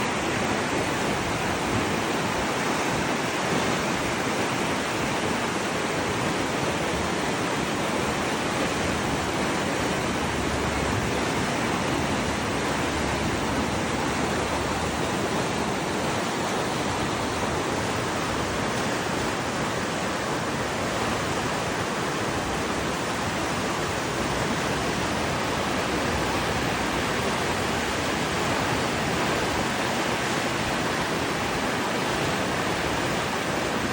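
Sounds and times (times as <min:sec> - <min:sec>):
rushing water: 0:00.0 - 0:33.9.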